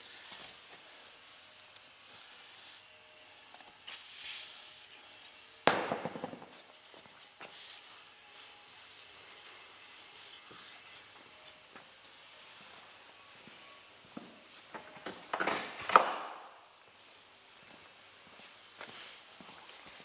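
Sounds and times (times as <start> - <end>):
sharp bang with rattle: 5.7 - 6.5.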